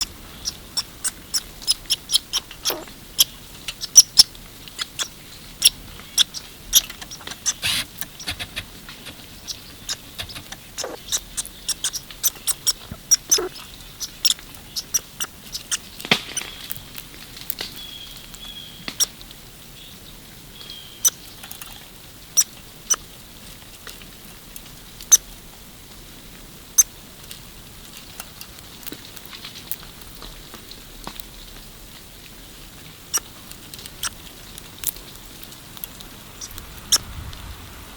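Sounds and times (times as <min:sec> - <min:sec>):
squirrel scrabbling at feeder: 0:00.0 - 0:18.4.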